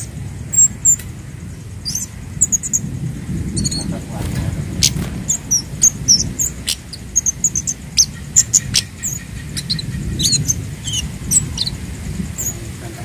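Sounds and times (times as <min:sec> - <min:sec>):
bird chirping and ticking: 0:00.0 - 0:13.0
low steady rumble: 0:00.0 - 0:13.0.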